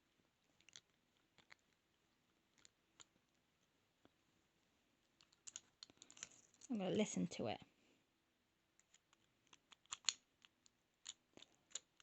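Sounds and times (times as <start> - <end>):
lock picks clicking in lock: 8.8 - 12.0.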